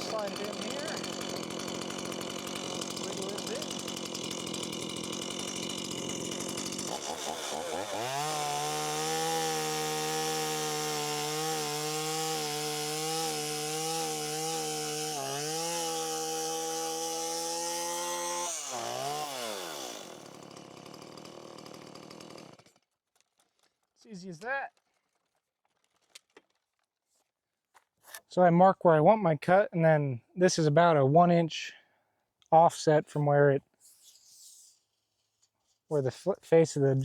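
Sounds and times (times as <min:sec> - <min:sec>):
chainsaw cutting timber: 0:00.0 - 0:23.0.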